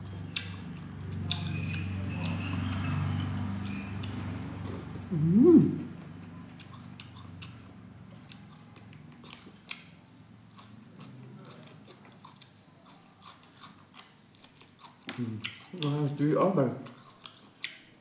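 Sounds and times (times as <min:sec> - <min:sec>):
person chewing food: 0:00.2 - 0:18.0
person humming: 0:05.1 - 0:05.9.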